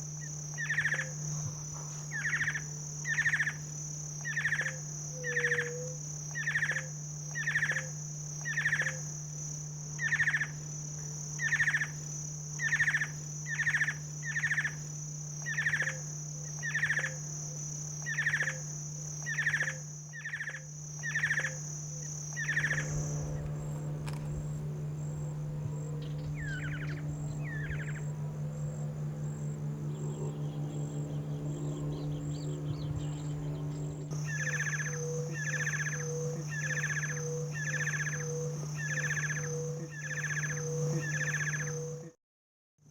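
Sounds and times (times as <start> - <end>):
insects droning: 0.0 - 42.2
bird buzzy falling call: 19.3 - 42.0.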